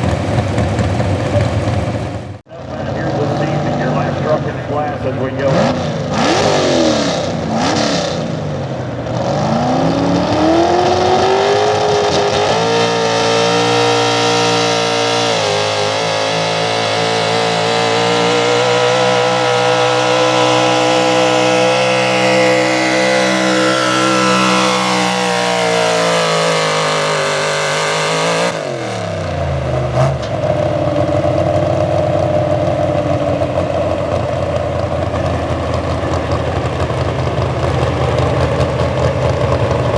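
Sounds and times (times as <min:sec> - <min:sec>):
engine idling: 0:00.0 - 0:05.5, 0:30.3 - 0:39.9
truck engine at full throttle: 0:00.0 - 0:39.9.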